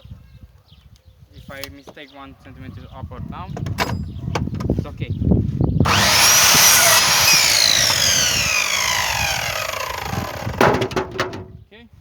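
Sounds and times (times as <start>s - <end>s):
electric saw cutting wood: 5.9s - 11.4s
sharp knock: 10.3s - 11.5s.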